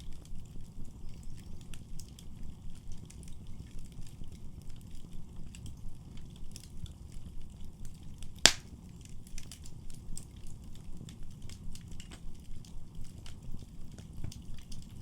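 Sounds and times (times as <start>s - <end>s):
fire crackles: 0.0s - 15.0s
wood fire rumbling: 0.0s - 15.0s
loud sharp pop of fire: 8.4s - 8.8s.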